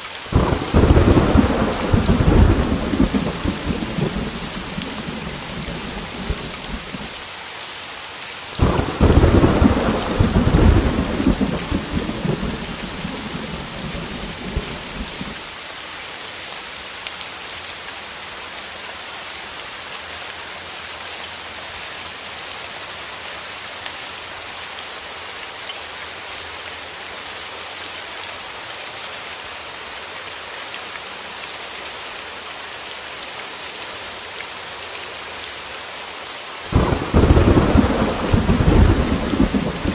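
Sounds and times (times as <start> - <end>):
heavy rain: 0.0 - 39.9
thunder clap rumbling: 0.3 - 7.1, 8.6 - 15.4, 36.7 - 39.9.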